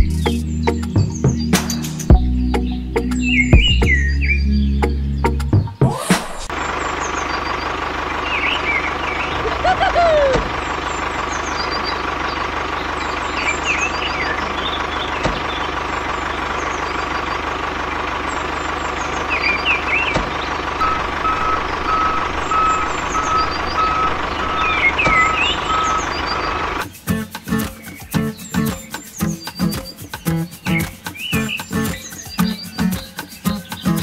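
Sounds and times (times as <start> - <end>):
vehicle engine drone: 6.3 - 27.0
short high chirps: 20.8 - 26.6
reversing beeper: 20.8 - 26.8.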